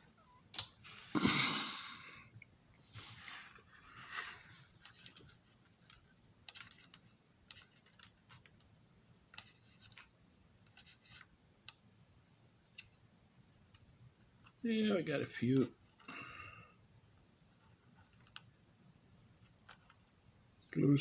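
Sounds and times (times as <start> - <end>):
small parts clicking: 4.8 - 8.7.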